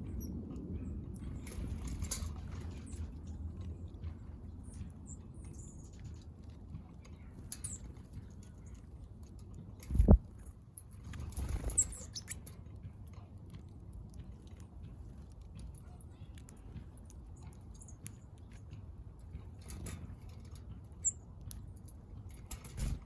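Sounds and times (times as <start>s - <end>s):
birds pecking at seed: 0.1s - 23.0s
faint high bird chirps: 7.6s - 7.9s, 11.4s - 12.5s, 20.9s - 21.2s
wings fluttering: 9.8s - 12.6s, 22.4s - 23.0s.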